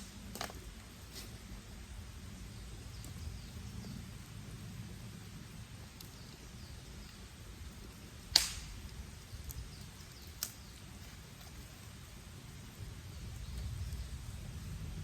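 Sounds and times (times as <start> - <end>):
campfire wood popping: 0.0 - 1.9, 4.8 - 15.0
low steady rumble: 0.0 - 15.0.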